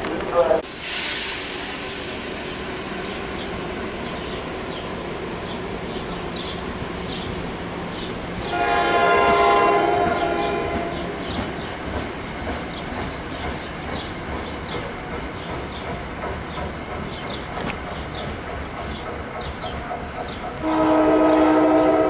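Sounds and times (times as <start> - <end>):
train rail noise: 0.0 - 22.0
train horn: 8.4 - 11.2, 20.6 - 22.0.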